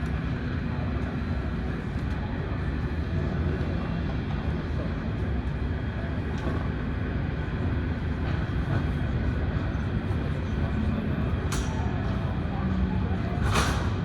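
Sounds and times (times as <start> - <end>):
jet engines idling in cabin: 0.0 - 14.0.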